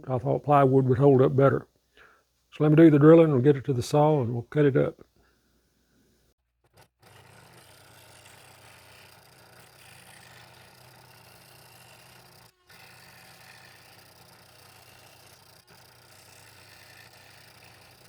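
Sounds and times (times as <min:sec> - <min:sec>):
small electric motor humming: 0:06.7 - 0:18.0.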